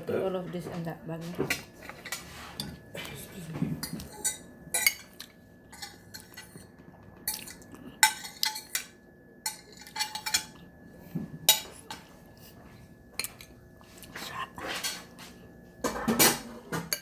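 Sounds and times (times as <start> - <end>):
dishes and utensils clinking: 0.6 - 13.6, 14.6 - 17.0.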